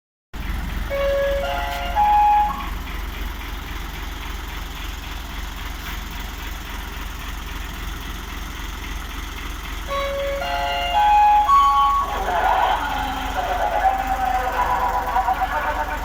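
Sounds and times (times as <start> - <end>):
truck engine idling: 0.4 - 16.0
stepped electronic melody tones: 0.9 - 2.8, 9.9 - 16.0.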